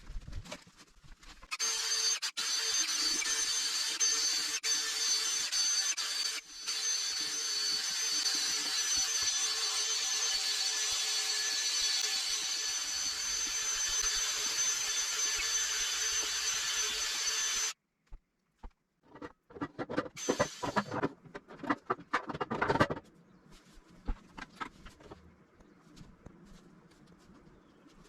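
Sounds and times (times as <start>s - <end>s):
power tool whining and rasping: 1.5s - 17.8s, 19.8s - 22.4s.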